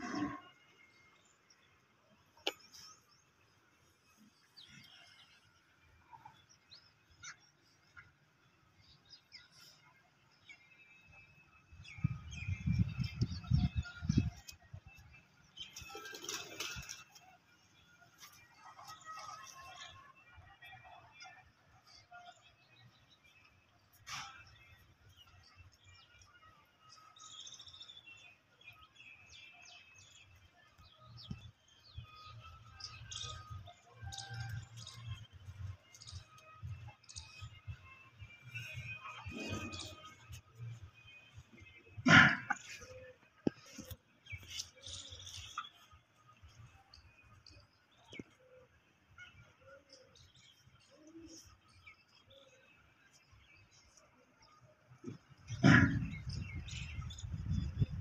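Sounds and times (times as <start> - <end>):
small birds chirping: 21.9 - 58.0.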